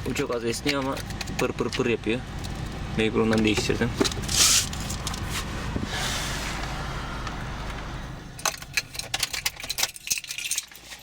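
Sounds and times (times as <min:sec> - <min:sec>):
car engine idling: 0:00.0 - 0:10.7
sharp clicks and knocks of handling: 0:00.1 - 0:05.2, 0:08.4 - 0:11.0.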